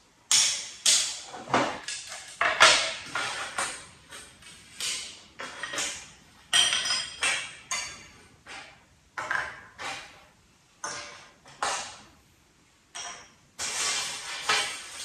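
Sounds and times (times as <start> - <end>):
metal tools clinking and tapping: 1.8 - 9.6, 12.9 - 13.4.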